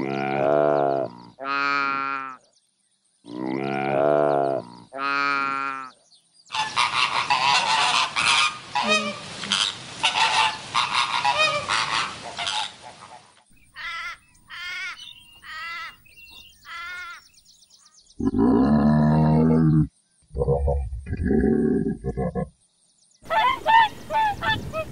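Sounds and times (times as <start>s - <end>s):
loud low animal call: 3.3s - 5.9s
flamingos honking: 6.5s - 16.0s, 23.3s - 24.9s.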